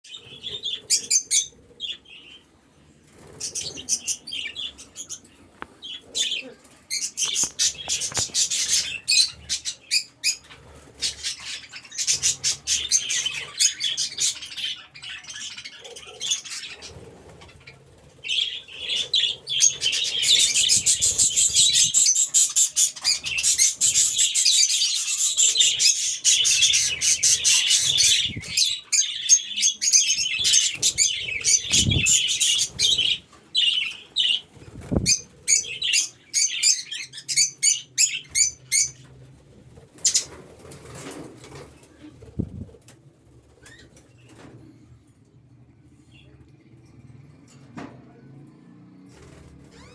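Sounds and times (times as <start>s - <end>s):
budgerigars chattering and chirping: 5.8s - 39.1s.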